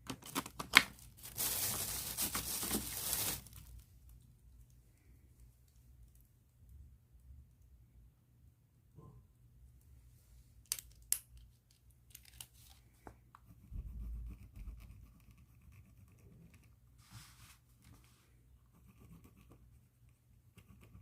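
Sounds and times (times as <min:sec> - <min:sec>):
plastic bag rustling: 0:00.2 - 0:03.8
pen scratching on paper: 0:13.5 - 0:16.7, 0:18.7 - 0:19.7, 0:20.5 - 0:21.0.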